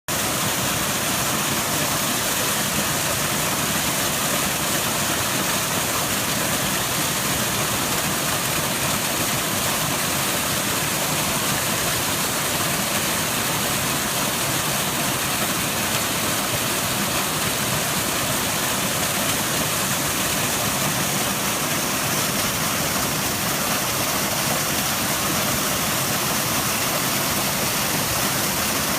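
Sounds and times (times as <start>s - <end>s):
waterfall splashing onto rocks: 0.1s - 28.9s.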